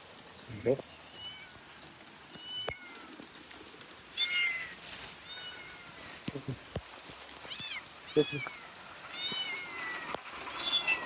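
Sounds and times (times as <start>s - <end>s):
kitten meowing: 4.2s - 5.9s, 7.5s - 11.0s.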